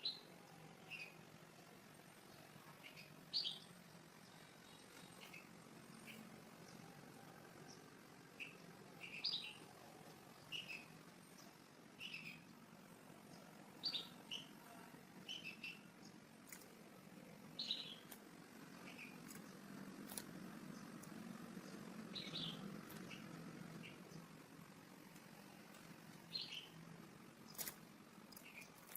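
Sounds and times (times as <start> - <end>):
faint bird chirping: 0.0 - 28.9
low steady hum: 0.0 - 28.9.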